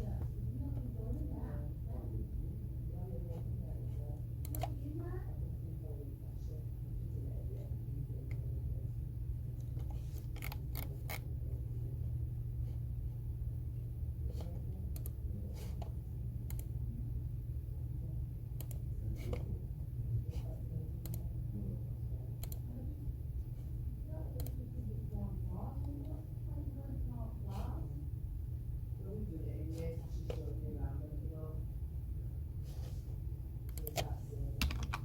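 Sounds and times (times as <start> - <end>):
steady low hum: 0.0 - 35.0
computer keyboard keys clicking: 33.7 - 35.0.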